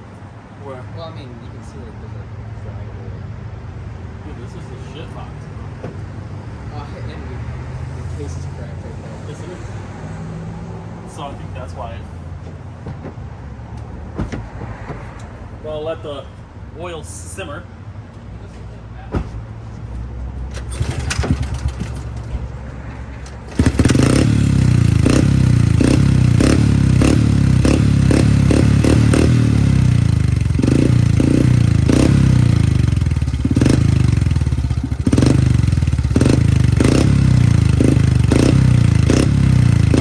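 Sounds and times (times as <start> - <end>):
motorbike engine starting: 20.5 - 22.3, 23.3 - 40.0
motorbike engine revving: 20.6 - 22.3, 23.4 - 40.0.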